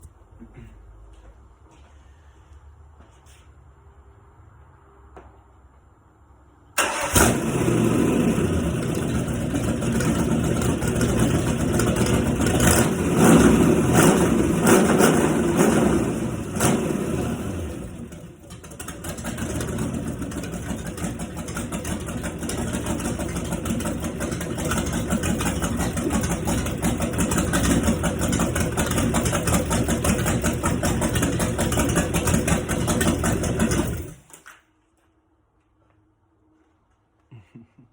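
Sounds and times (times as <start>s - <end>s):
engine revving and idling: 6.8s - 34.3s.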